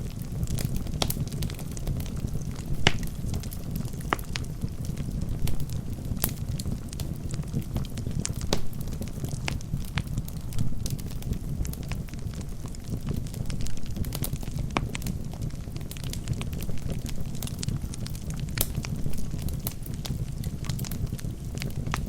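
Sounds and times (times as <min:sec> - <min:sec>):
wood fire burning: 0:00.0 - 0:22.0.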